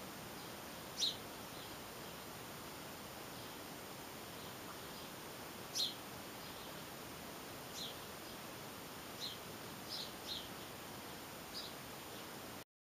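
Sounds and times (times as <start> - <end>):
steady hiss: 0.0 - 12.6
small songbird chirping: 0.3 - 2.2, 3.1 - 7.0, 7.6 - 8.5, 9.1 - 12.5.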